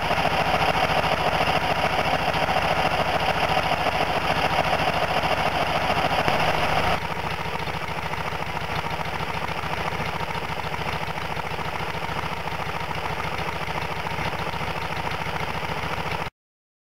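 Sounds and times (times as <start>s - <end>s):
engine idling: 0.0s - 16.3s.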